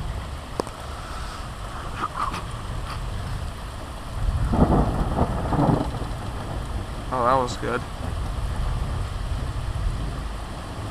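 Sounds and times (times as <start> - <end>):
heavy rain falling: 0.0 - 10.9
thunder rumbling: 2.6 - 10.9.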